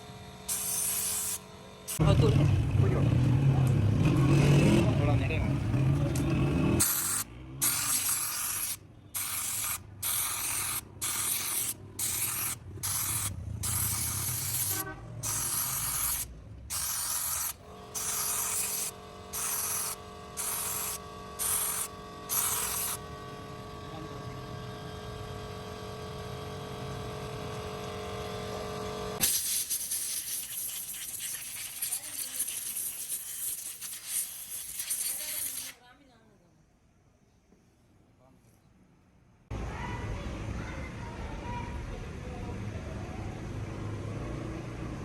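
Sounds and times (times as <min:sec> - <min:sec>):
aerosol spray hissing bursts: 0:00.5 - 0:02.0, 0:06.8 - 0:23.0, 0:29.2 - 0:35.8.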